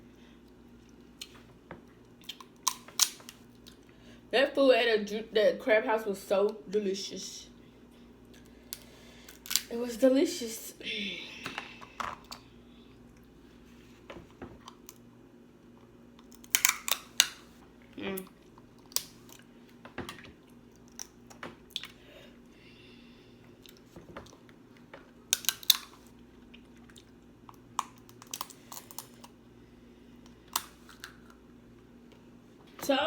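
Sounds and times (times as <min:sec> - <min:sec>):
chewing and mouth sounds: 0:00.4 - 0:03.9, 0:20.4 - 0:22.0, 0:23.5 - 0:29.4
crab shells cracking: 0:02.2 - 0:03.8, 0:08.3 - 0:09.7, 0:16.2 - 0:17.5, 0:18.3 - 0:19.5, 0:20.7 - 0:22.0, 0:25.2 - 0:29.4, 0:30.2 - 0:31.4.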